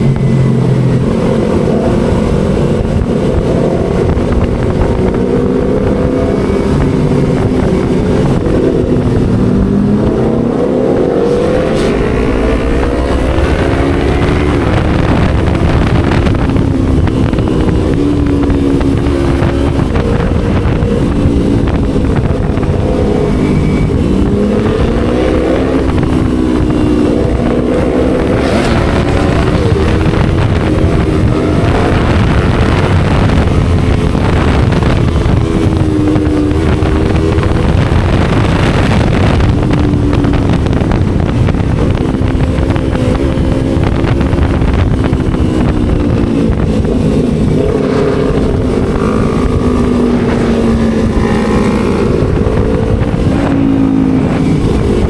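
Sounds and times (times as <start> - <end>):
motorcycle engine revving: 0.0 - 55.0
wind noise on microphone: 0.0 - 55.0.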